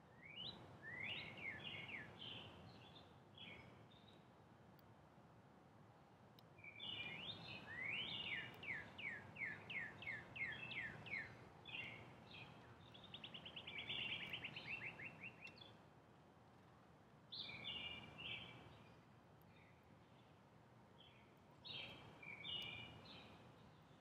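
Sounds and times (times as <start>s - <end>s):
cardinal singing whistles and trills: 0.2s - 2.5s, 6.6s - 15.7s.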